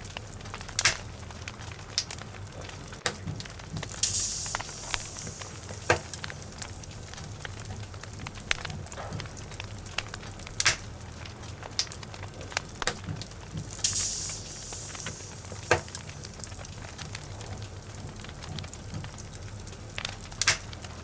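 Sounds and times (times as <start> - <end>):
fire crackling pops and snaps: 0.0 - 21.0
low rumble of flame: 0.0 - 21.0.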